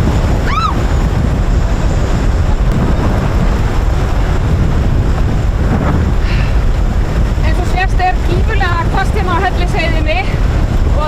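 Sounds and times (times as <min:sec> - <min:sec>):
wind buffeting microphone: 0:00.0 - 0:11.0
brief high cry: 0:00.4 - 0:00.8.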